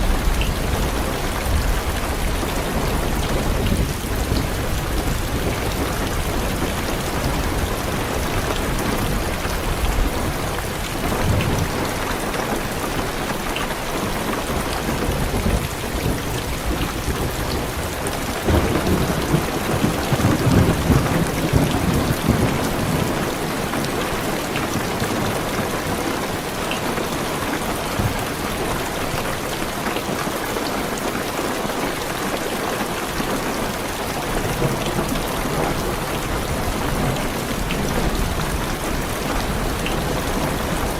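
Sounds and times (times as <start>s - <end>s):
low thunder rumbling: 0.0s - 12.1s, 14.5s - 26.0s
heavy rain on car roof: 0.0s - 40.9s.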